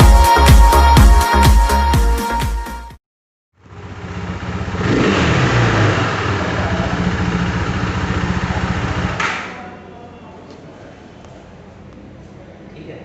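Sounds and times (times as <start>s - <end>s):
motorcycle engine revving: 3.6s - 9.3s.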